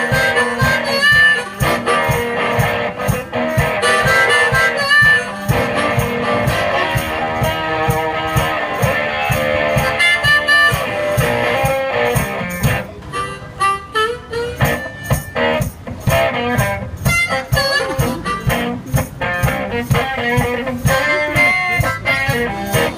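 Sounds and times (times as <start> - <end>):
steady low beat: 0.0 - 13.6
guitar: 0.0 - 22.9
harmonica: 0.0 - 22.9.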